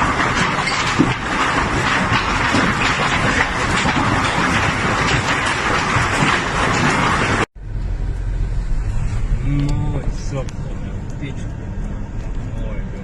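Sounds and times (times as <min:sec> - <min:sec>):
hail pelting down: 0:00.0 - 0:07.5.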